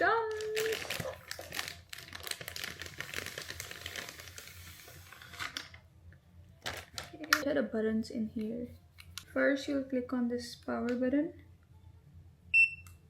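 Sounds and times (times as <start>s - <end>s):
packaging crinkling and rustling: 0.0s - 5.8s, 6.6s - 7.5s.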